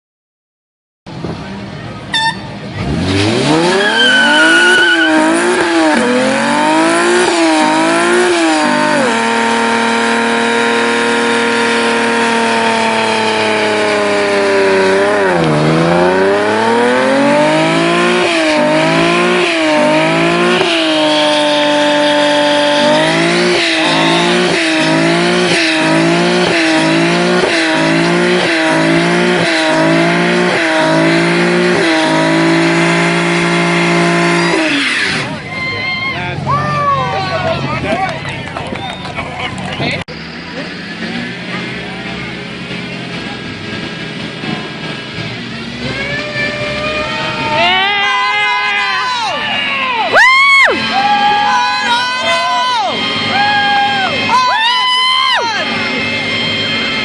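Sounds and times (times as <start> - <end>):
car engine revving: 2.1 - 35.5, 36.2 - 57.0.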